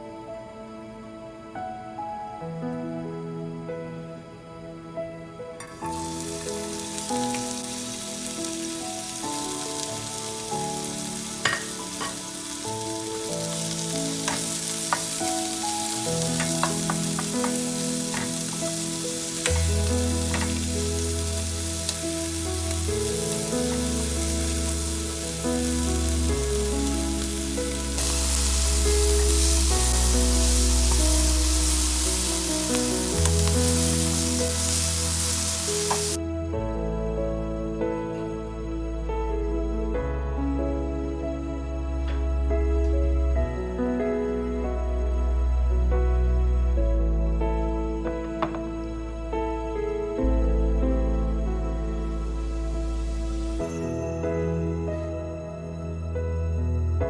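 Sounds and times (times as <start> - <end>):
gentle background music: 0.0 - 57.0
food sizzling in a frying pan: 5.6 - 36.2.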